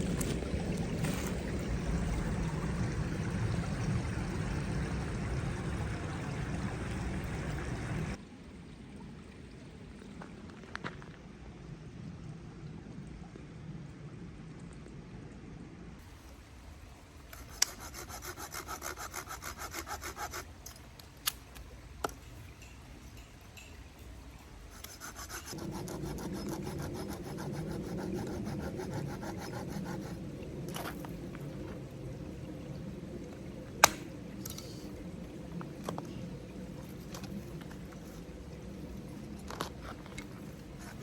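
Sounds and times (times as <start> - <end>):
hand saw cutting wood: 17.4 - 20.6, 24.8 - 30.1.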